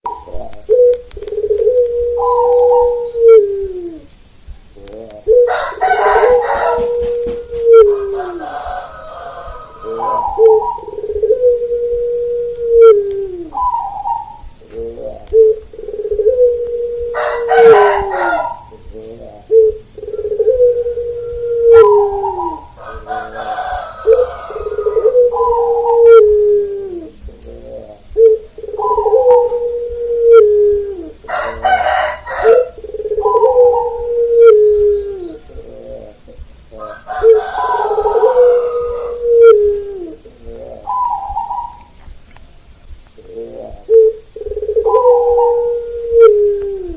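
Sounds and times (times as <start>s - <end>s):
doves cooing: 0.0s - 46.9s
rooster crowing: 5.4s - 11.0s, 16.6s - 18.8s, 20.7s - 26.7s, 31.2s - 35.6s, 36.7s - 40.0s.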